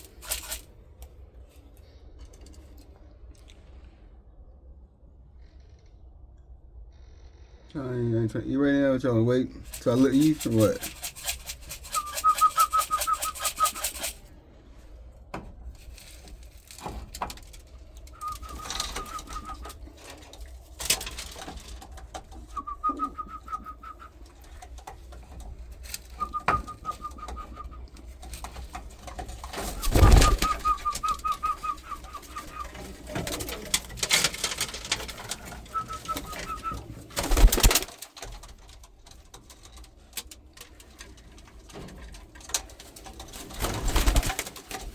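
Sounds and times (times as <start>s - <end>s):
pigeons calling: 0.0s - 0.6s, 9.8s - 14.2s, 18.1s - 20.1s, 22.4s - 38.0s, 43.2s - 44.9s
wings rustling or flapping: 0.0s - 0.8s, 9.6s - 14.3s, 15.7s - 40.0s, 40.6s - 44.9s.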